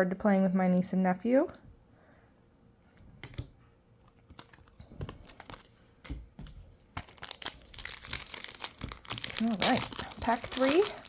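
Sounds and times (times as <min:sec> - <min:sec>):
trading cards clicking and rustling: 0:03.2 - 0:11.0
foil wrapper crinkling: 0:07.0 - 0:11.0.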